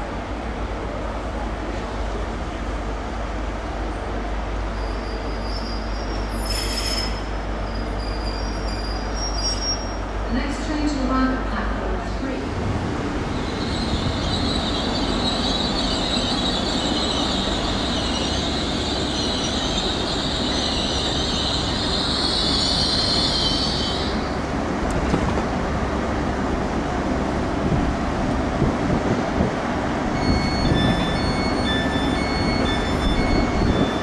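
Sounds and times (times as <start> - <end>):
train rumbling on track: 0.0 - 34.0
high wheel squeal: 4.7 - 10.0, 13.4 - 24.2.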